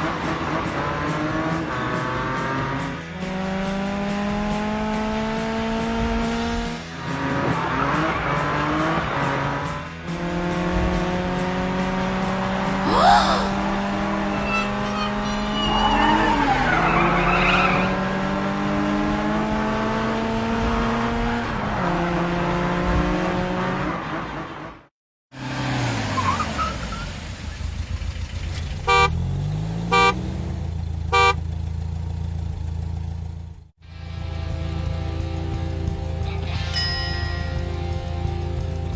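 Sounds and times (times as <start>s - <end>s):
cartoon car engines revving: 0.0s - 33.6s
car horn honks: 14.2s - 16.3s, 28.8s - 29.2s, 29.9s - 30.2s, 31.1s - 31.5s.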